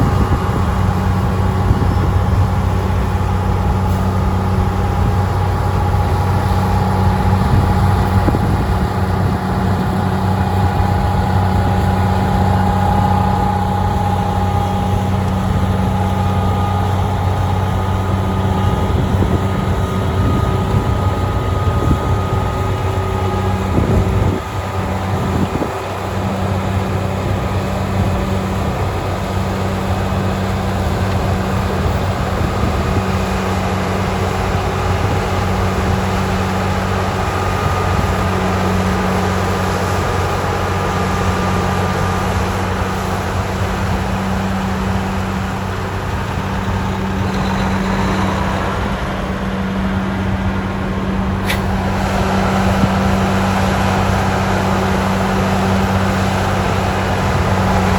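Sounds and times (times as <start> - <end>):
continuous rushing noise: 0.0 - 57.9
heavy diesel engines running: 0.0 - 57.9
sharp click: 51.4 - 51.7.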